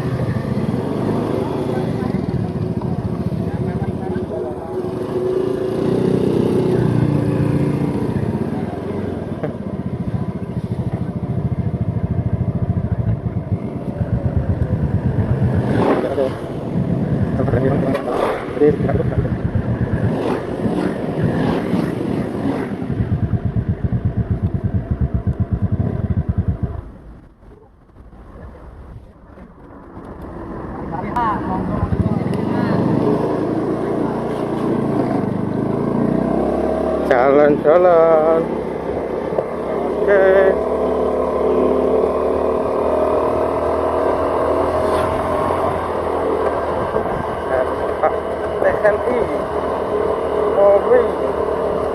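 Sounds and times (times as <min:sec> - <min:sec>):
motorcycle engine running: 0:00.0 - 0:28.6, 0:29.2 - 0:51.9
road and wind noise: 0:00.0 - 0:51.9.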